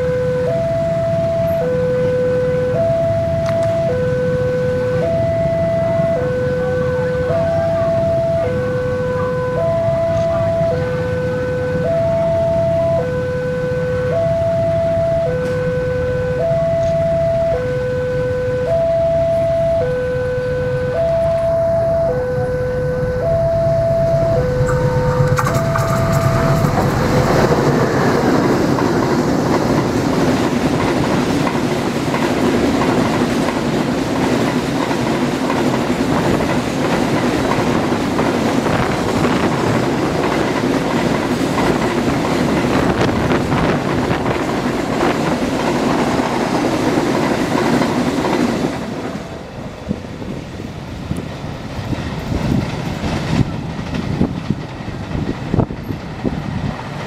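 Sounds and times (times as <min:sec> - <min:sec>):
diesel locomotive passing: 0:00.0 - 0:57.0
train wheels clattering over rail joints: 0:25.2 - 0:57.0.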